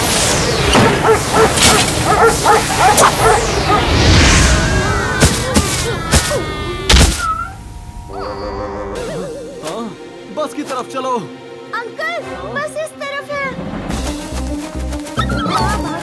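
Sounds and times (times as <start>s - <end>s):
sharp hits: 0.0s - 8.1s
cartoon dogs barking and yipping: 0.8s - 4.2s, 15.1s - 16.0s.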